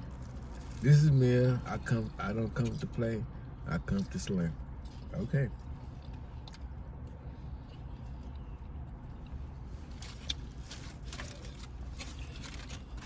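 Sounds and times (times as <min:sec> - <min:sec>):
chewing clicks and smacks: 0:05.0 - 0:09.4.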